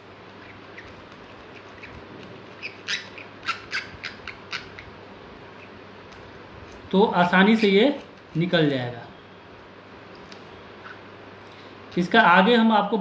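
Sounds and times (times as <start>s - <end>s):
room noise: 0.0s - 13.0s
bird squawking: 2.6s - 4.8s.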